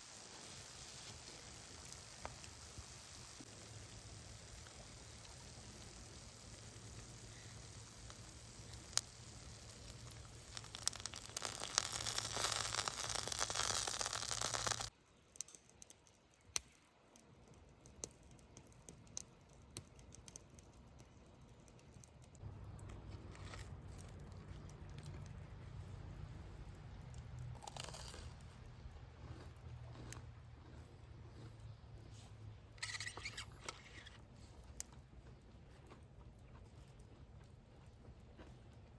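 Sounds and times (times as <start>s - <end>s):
crinkling and tearing: 10.2s - 14.9s, 21.7s - 25.5s.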